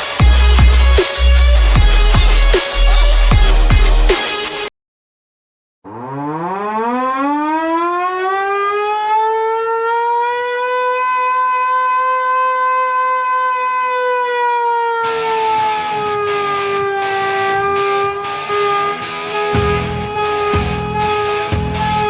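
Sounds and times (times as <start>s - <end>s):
music with a beat: 0.0s - 4.7s, 18.3s - 22.0s
siren wailing: 5.9s - 22.0s.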